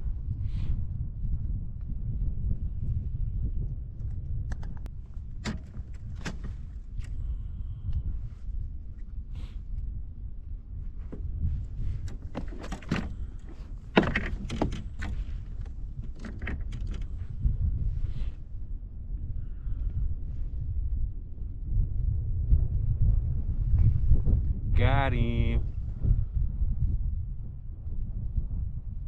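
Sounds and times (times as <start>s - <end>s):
wind rumble on microphone: 0.0s - 29.0s
fishing gear clicking and rattling: 5.4s - 7.2s, 12.0s - 17.2s.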